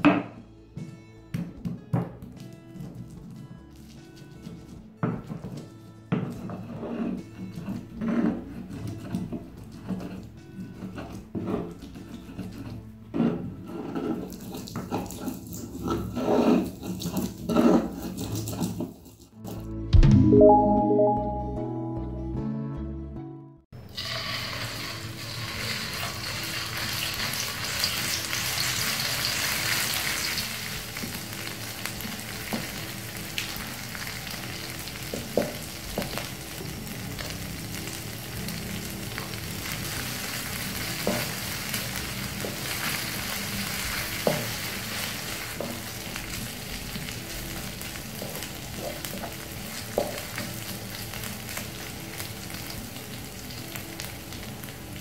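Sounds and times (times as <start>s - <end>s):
wooden spatula scraping pan: 3.0s - 19.3s
spice paste sizzling in hot oil: 14.0s - 19.3s, 23.8s - 55.0s.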